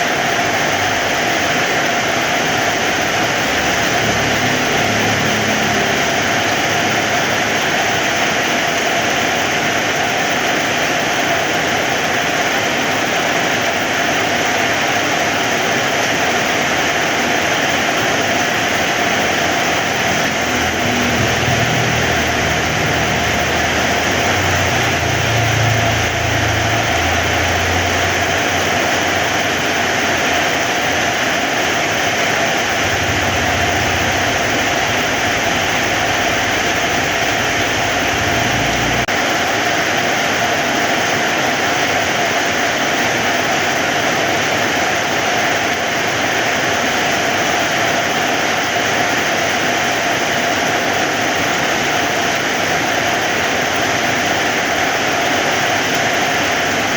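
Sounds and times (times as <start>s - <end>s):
heavy rain: 0.0s - 56.9s
low rumble: 19.2s - 29.9s, 32.3s - 39.1s.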